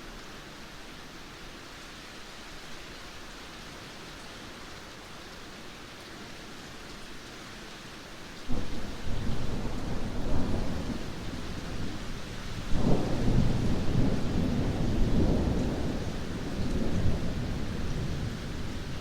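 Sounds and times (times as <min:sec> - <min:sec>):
heavy rain hissing: 0:00.0 - 0:19.0
loud thunder rumbling: 0:08.5 - 0:12.0, 0:12.6 - 0:19.0.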